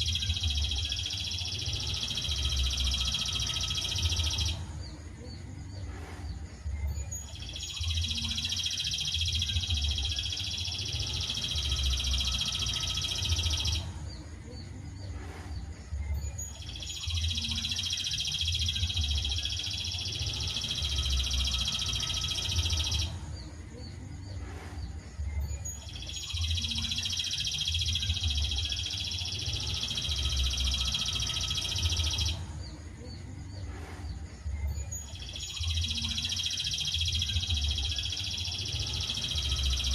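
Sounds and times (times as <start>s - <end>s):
songbird trilling: 7.0s - 13.9s, 16.2s - 23.1s, 25.6s - 32.4s, 34.8s - 39.9s.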